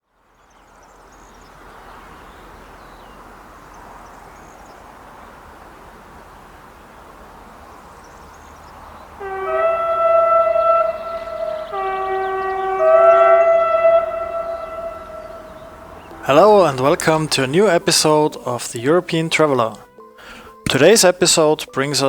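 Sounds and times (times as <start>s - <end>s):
train horn chord: 9.2s - 18.2s.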